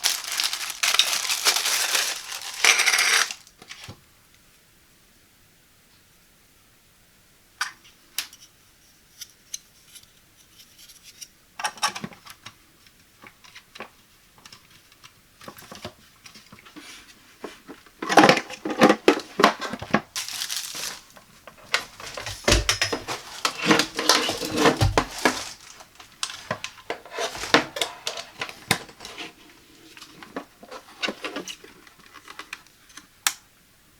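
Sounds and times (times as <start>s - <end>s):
packaging rustling and crinkling: 0.0s - 4.0s, 15.4s - 33.0s.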